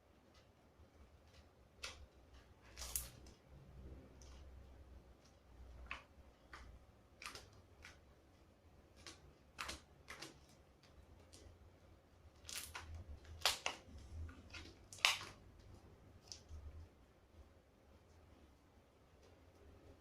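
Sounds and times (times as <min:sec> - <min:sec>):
soft squishes: 0:00.2 - 0:20.0.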